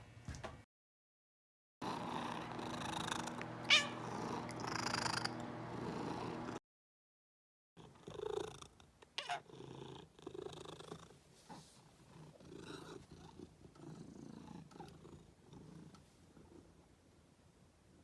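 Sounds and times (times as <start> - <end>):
cat purring: 1.8 - 6.6, 7.8 - 16.9.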